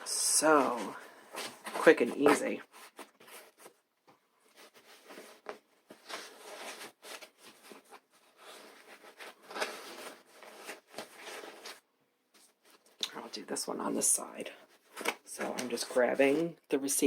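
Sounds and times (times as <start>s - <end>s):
fabric rustling: 0.0s - 13.6s.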